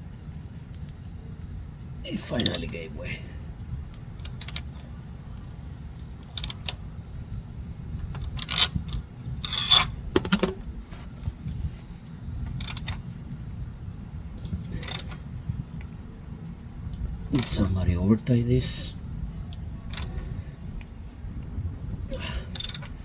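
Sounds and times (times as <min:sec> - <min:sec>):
steady low hum: 0:00.0 - 0:23.0
hand tools clinking: 0:09.4 - 0:10.5, 0:14.8 - 0:15.2, 0:17.4 - 0:17.7, 0:22.5 - 0:22.9.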